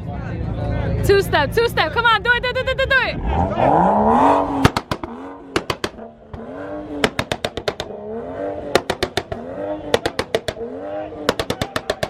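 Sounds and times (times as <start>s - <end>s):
car engine revving at limiter: 3.0s - 12.0s
exhaust pops and bangs: 4.6s - 12.0s.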